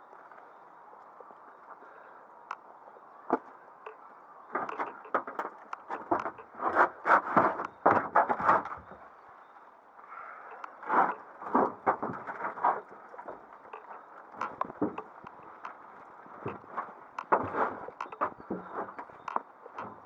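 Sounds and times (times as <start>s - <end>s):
scattered clicks: 10.5s - 11.3s
crunching knocks: 10.5s - 20.0s.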